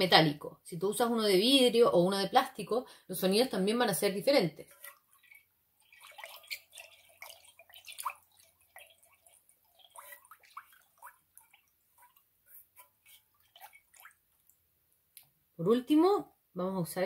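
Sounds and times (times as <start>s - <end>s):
water dripping into metal basin: 4.6s - 15.3s.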